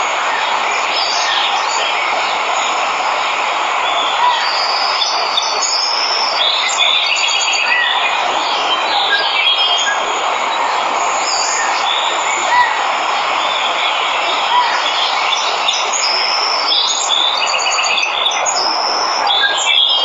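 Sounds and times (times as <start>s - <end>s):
waterfall rushing: 0.0s - 20.0s
birds chirping and trilling: 3.8s - 20.0s.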